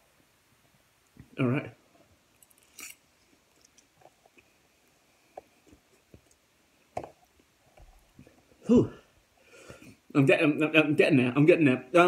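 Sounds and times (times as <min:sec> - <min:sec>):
faint chewing: 0:02.4 - 0:06.5.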